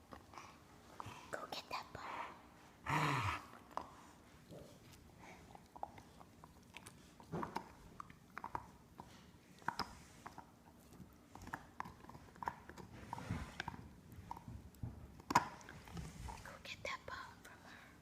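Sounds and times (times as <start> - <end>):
dog chewing a bone: 3.4 - 16.4.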